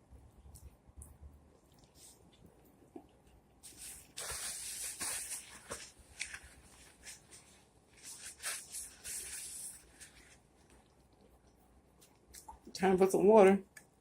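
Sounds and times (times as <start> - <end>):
wet crackly chewing: 0.4 - 3.7, 9.7 - 12.7.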